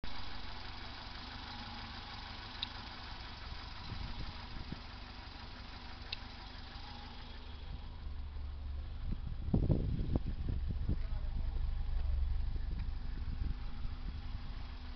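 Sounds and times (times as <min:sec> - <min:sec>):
car engine idling: 0:00.0 - 0:14.9
sharp ticks: 0:06.1 - 0:06.3.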